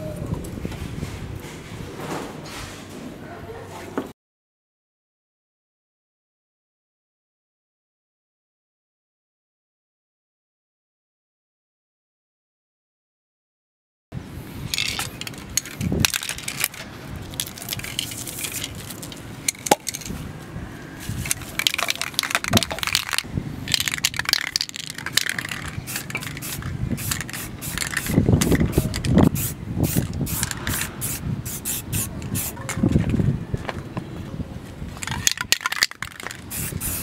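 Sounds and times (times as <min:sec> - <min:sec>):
spray paint hissing: 0:14.6 - 0:19.7, 0:21.0 - 0:32.7, 0:35.9 - 0:37.0
spray can ball rattling: 0:14.7 - 0:20.2, 0:21.1 - 0:32.7, 0:35.0 - 0:37.0.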